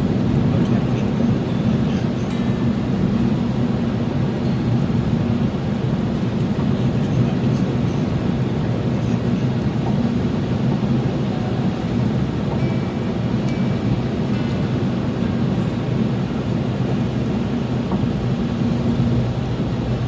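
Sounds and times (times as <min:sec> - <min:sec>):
car driving on road rumble: 0:00.0 - 0:20.0.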